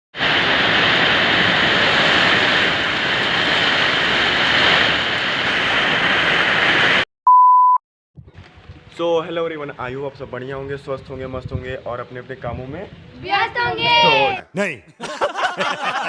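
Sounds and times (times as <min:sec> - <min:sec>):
heavy rain hissing: 0:00.2 - 0:07.0
short pure beep: 0:07.3 - 0:07.8.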